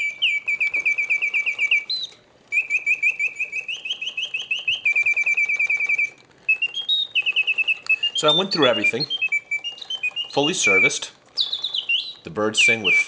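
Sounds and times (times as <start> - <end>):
mechanical bird whistling trills: 0.0 - 13.0.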